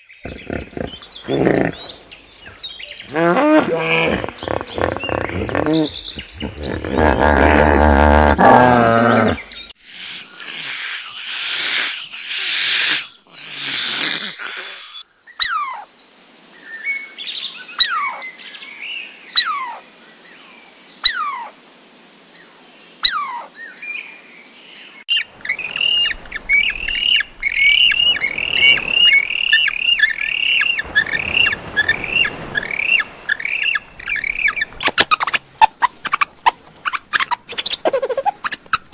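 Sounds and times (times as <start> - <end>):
hippopotamus honking grunt: 0.2 - 2.0, 3.0 - 9.4
rapid high chirping: 25.1 - 38.9.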